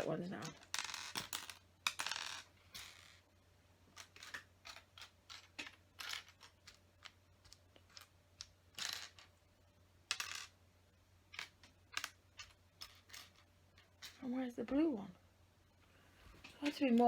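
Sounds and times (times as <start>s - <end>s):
plastic toy bricks clattering: 0.3s - 3.2s, 3.9s - 9.4s, 10.1s - 10.6s, 11.3s - 14.2s.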